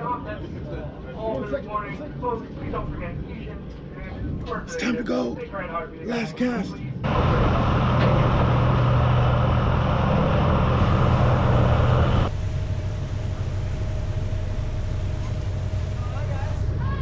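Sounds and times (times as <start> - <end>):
boat engines droning: 6.8 - 17.0.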